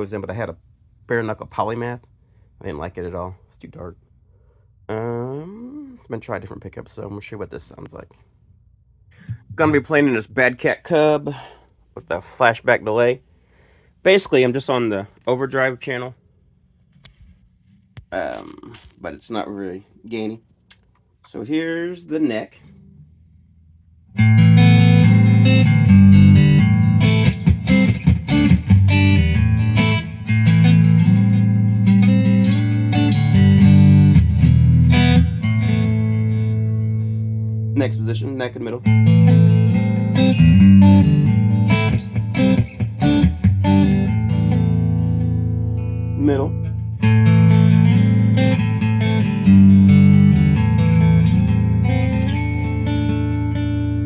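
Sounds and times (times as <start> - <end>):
electric guitar strummed chords: 24.2 - 37.8, 38.8 - 54.0.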